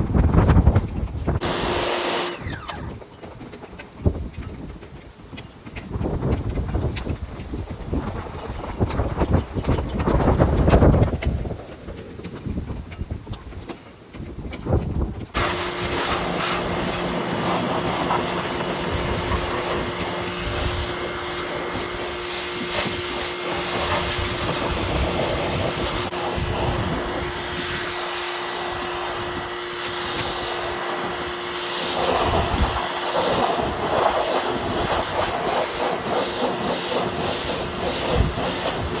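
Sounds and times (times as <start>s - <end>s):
wind buffeting microphone: 0.0s - 1.5s, 3.9s - 31.3s, 31.9s - 39.0s
machine hum: 1.4s - 3.0s, 15.4s - 39.0s.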